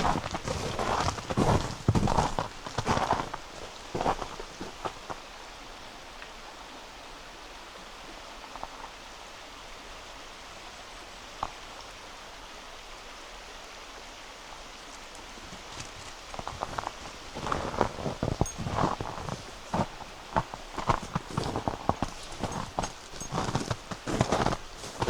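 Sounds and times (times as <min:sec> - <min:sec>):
footsteps on packed snow: 0:00.0 - 0:05.2, 0:15.4 - 0:25.0
river flowing: 0:00.0 - 0:25.0.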